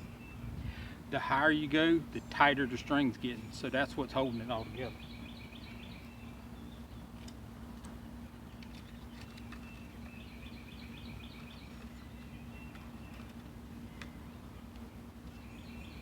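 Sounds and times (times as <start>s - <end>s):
steady low hum: 0.0s - 16.0s
rhythmic chirping call: 2.1s - 6.4s.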